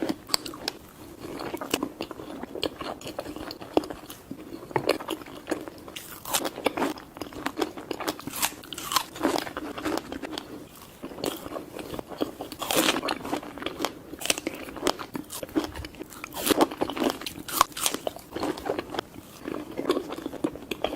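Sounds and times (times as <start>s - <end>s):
person chewing crunchy food: 0.0s - 20.9s.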